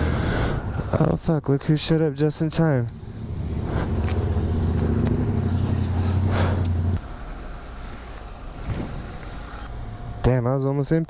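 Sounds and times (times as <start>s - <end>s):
motorcycle engine idling: 2.6s - 9.6s.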